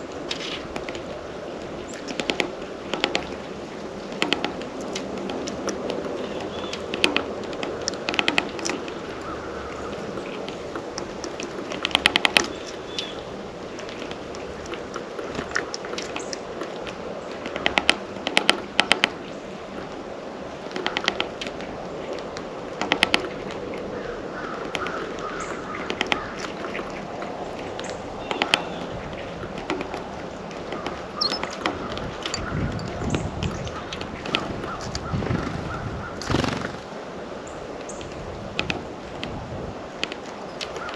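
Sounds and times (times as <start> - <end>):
birds pecking at a feeder: 0.0 - 35.2
short bird chirps: 31.2 - 31.5.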